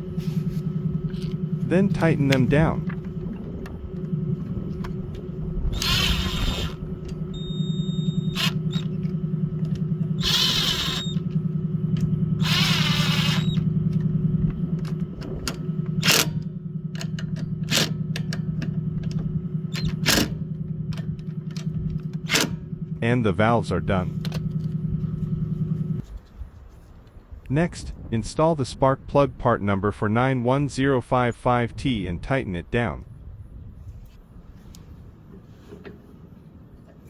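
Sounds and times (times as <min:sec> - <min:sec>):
power driver whirring: 0:00.0 - 0:23.0
low hum: 0:00.0 - 0:37.0.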